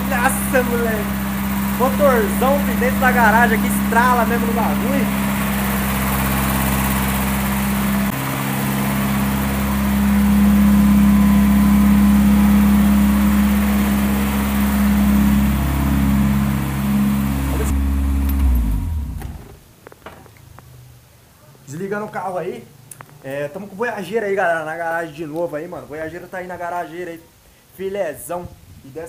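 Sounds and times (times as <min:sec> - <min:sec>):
car engine running: 0:00.0 - 0:19.6
engine winding down: 0:00.0 - 0:19.7.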